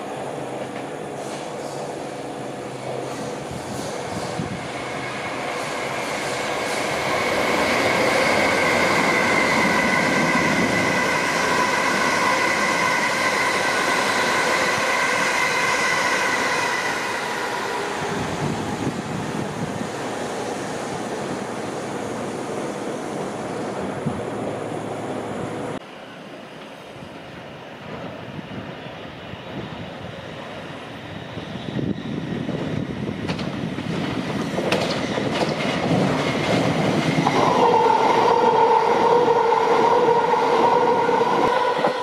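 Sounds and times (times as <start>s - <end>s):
electric train rumbling on tracks: 0.0s - 42.0s.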